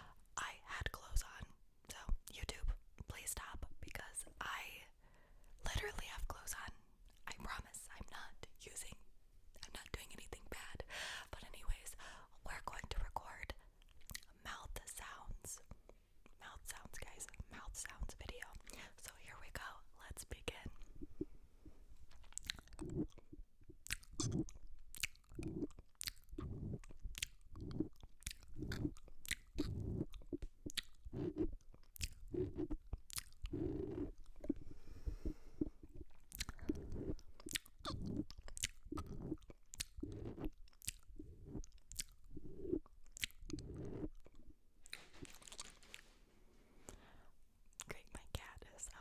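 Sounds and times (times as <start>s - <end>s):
wet mouth smacks and clicks: 13.9s - 14.3s, 22.1s - 46.1s.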